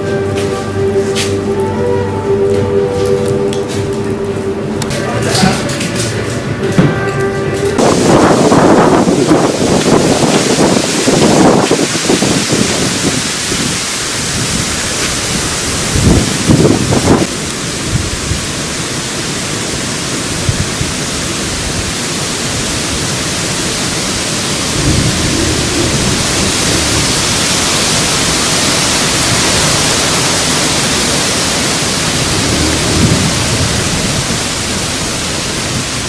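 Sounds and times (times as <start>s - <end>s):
wind on microphone: 7.7s - 18.9s, 20.4s - 22.8s, 24.2s - 36.0s
water rushing: 7.8s - 36.0s.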